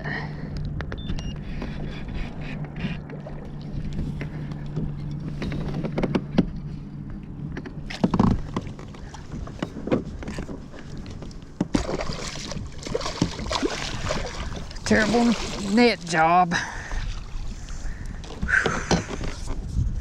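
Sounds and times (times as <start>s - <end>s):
steady low hum: 0.0s - 20.0s
knocks and bumps on kayak: 7.5s - 15.2s
water splashing: 10.7s - 18.0s.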